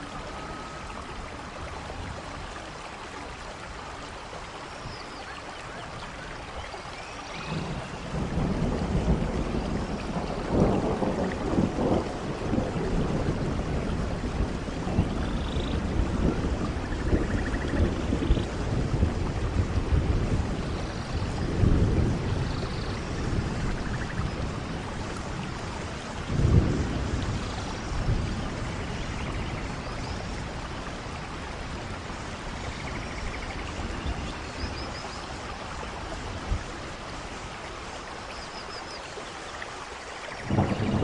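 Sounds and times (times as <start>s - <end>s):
steady rain: 0.0s - 41.0s
thunder rumbling: 7.4s - 37.6s, 40.4s - 41.0s.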